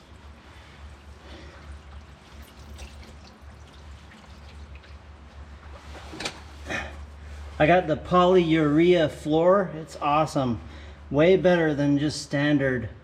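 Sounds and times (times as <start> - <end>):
oil pouring in a stream: 0.8 - 5.5
oil splashing on floor: 1.6 - 5.1.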